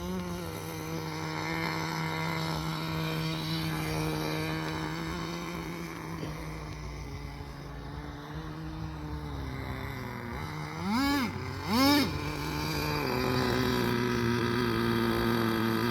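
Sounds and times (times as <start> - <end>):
small two-stroke engine revving: 0.0 - 15.9.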